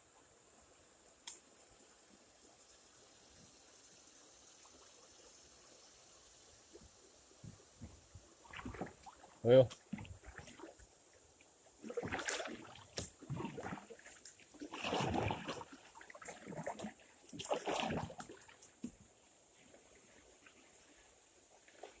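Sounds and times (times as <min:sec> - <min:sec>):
paddle splashing in water: 0:07.4 - 0:11.0, 0:11.8 - 0:22.0.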